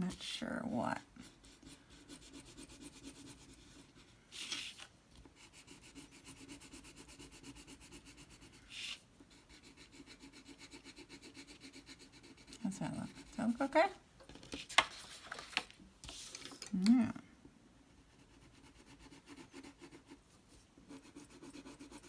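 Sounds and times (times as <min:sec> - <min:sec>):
crayon scratching on paper: 0:01.2 - 0:04.1, 0:05.4 - 0:13.8, 0:18.0 - 0:20.2, 0:20.9 - 0:22.0.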